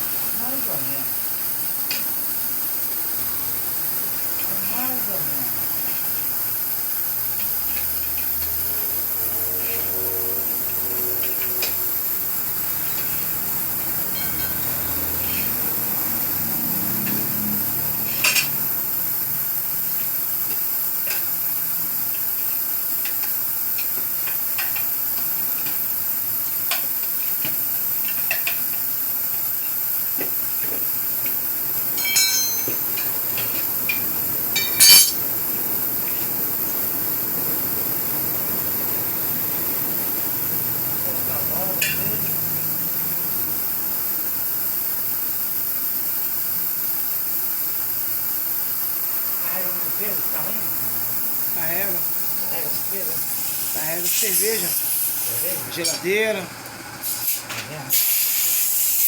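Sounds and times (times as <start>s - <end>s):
steady hiss: 0.0s - 59.0s
metallic tool knocks and clinks: 14.1s - 14.7s, 32.0s - 33.1s, 34.6s - 35.2s.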